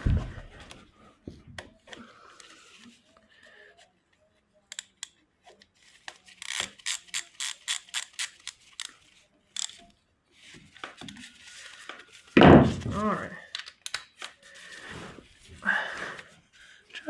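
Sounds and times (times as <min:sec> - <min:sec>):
ratchet wrench clicking: 0:06.4 - 0:08.9.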